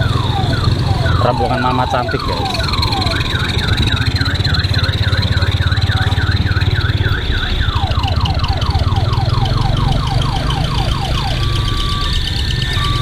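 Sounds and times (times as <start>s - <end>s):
bus engine rumbling: 0.0s - 13.0s
warbling electronic siren: 0.0s - 13.0s.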